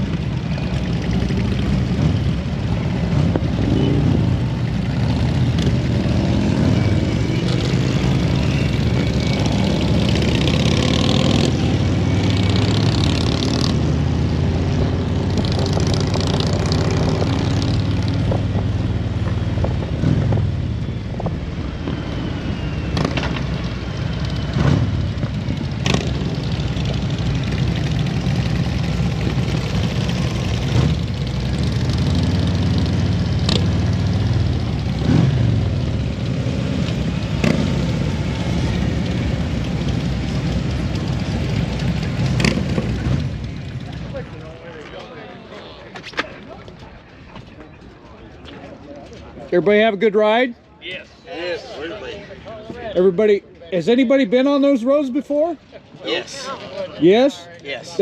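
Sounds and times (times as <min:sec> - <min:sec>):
motorcycle engine running: 0:23.0 - 0:44.3.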